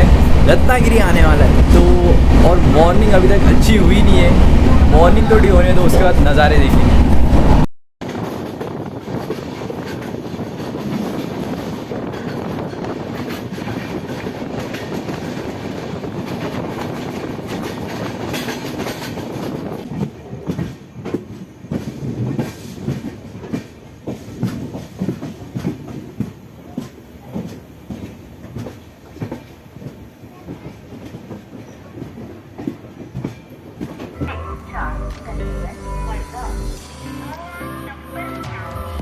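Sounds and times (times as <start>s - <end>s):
train rumble: 0.0s - 39.0s
train wheels clacking over joints: 8.0s - 34.2s.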